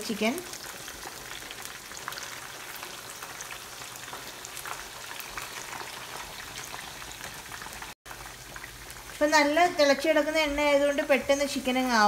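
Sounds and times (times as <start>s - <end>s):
oil sizzling and popping: 0.0s - 12.0s.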